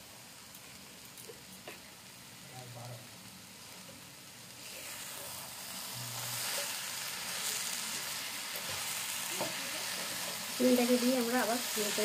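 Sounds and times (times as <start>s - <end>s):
food sizzling in a frying pan: 0.0s - 12.0s
spatula stirring: 4.6s - 12.0s.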